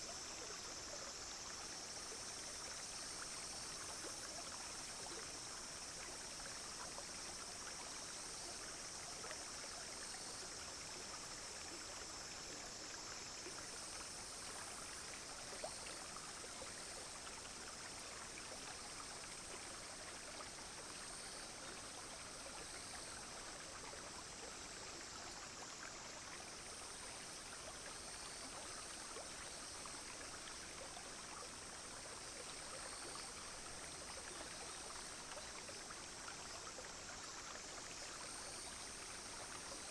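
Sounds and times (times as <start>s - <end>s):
cicadas and insects chorus: 0.0s - 39.9s
stream babbling over stones: 0.0s - 39.9s.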